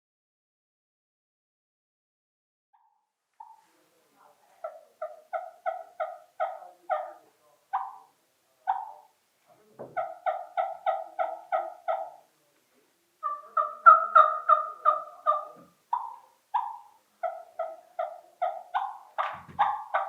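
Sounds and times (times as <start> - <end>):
turkey call yelps: 4.6 - 9.2, 10.0 - 12.3, 13.2 - 20.0.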